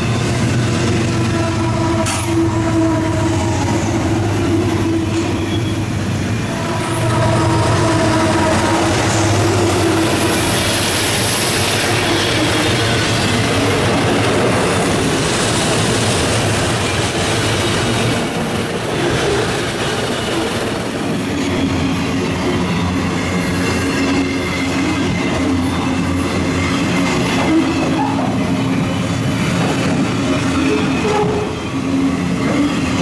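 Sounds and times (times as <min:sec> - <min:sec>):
freight train rumbling past: 0:00.0 - 0:33.0
high wheel squeal: 0:03.9 - 0:08.6, 0:14.9 - 0:33.0.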